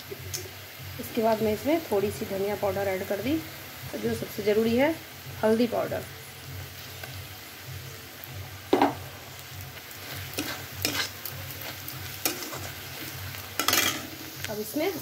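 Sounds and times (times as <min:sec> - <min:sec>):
masala sizzling in oil: 0:00.0 - 0:15.0
spoon scraping a pan: 0:09.9 - 0:14.5.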